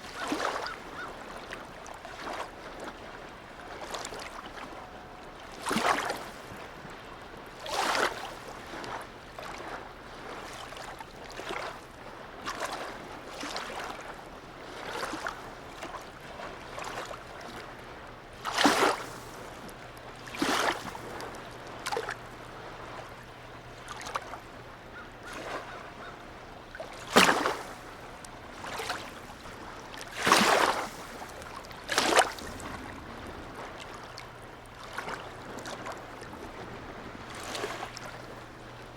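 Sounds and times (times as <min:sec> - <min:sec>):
water lapping and splashing: 0:00.0 - 0:38.9.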